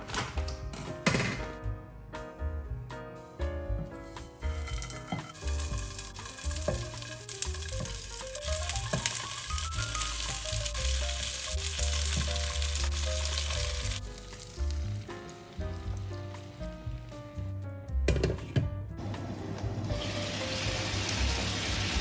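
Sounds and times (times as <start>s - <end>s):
food sizzling in frying pan: 4.6s - 15.6s, 19.8s - 22.0s.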